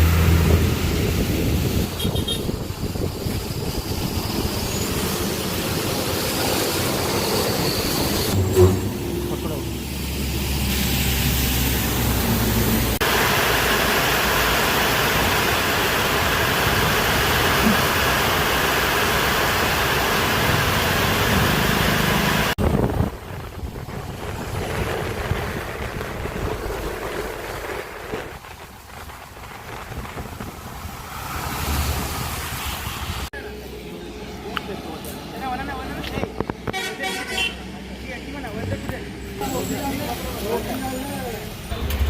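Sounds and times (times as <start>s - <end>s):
road vehicle running noise: 0.0s - 42.0s
wind rushing over microphone: 0.1s - 7.1s, 22.6s - 33.3s.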